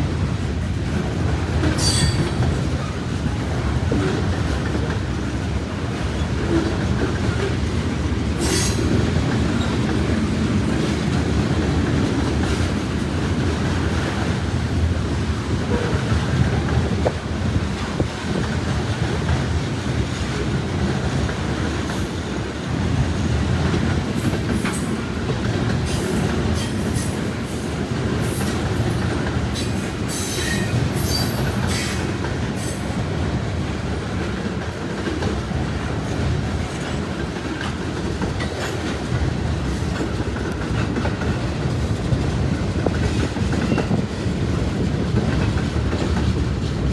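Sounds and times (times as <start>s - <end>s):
freight train rumbling on rails: 0.0s - 46.9s
wheels clacking over rail joints: 0.4s - 46.9s
high wheel squeals: 1.8s - 2.3s.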